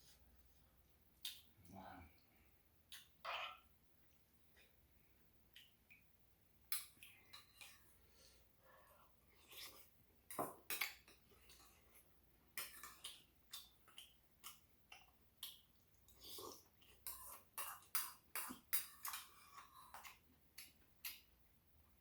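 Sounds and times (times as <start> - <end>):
person chewing wetly: 9.2 - 21.3.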